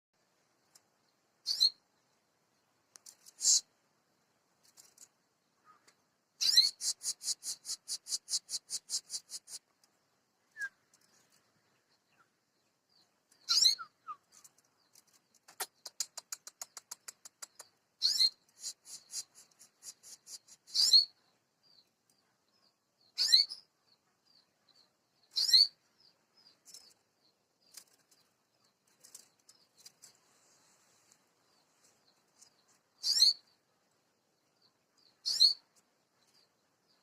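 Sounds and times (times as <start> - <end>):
soft bird chirps: 0.2 - 37.0
canary singing: 1.4 - 1.8, 6.4 - 9.8, 13.0 - 15.9, 16.6 - 21.9, 23.0 - 23.7, 24.3 - 30.2, 31.5 - 33.7, 35.0 - 37.0.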